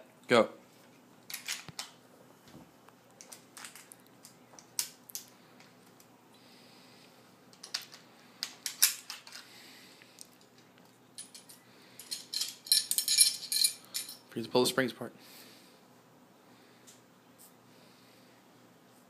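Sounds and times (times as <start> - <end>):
gun parts clicking and clacking: 1.3 - 2.0, 3.2 - 6.1, 7.5 - 9.5
metal parts scraping: 7.6 - 9.5, 11.2 - 14.2.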